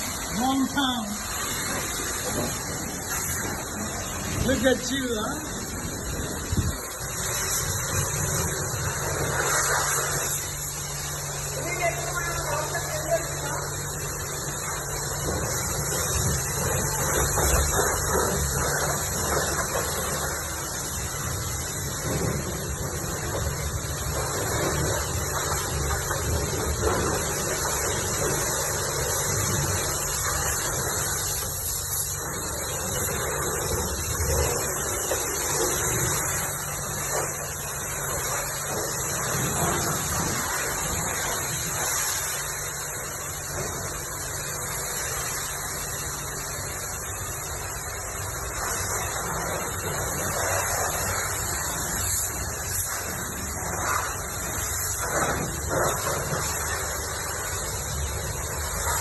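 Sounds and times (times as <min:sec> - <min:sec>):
pressure washer spraying water: 0:00.0 - 0:59.0.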